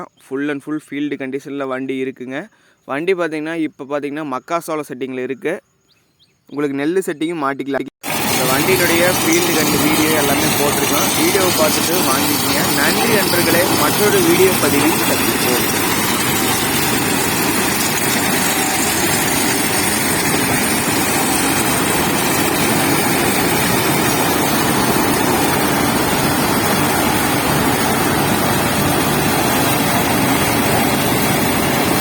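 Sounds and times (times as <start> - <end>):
combine harvester running: 8.0 - 32.0.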